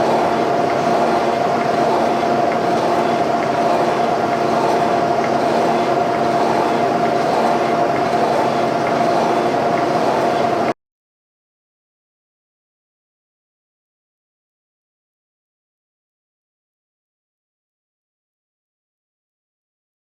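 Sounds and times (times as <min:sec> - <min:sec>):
boring machine running with whine: 0:00.0 - 0:10.8.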